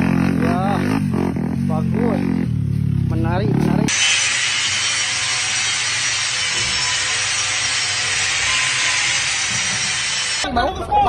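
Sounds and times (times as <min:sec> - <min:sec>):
tool rasping material: 0:03.9 - 0:10.4.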